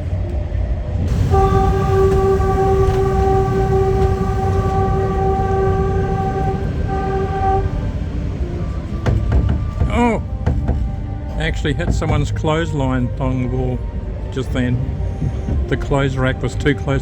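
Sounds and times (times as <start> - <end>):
low rumble of moving train: 0.0 - 17.0
train horn blasts: 1.1 - 13.0.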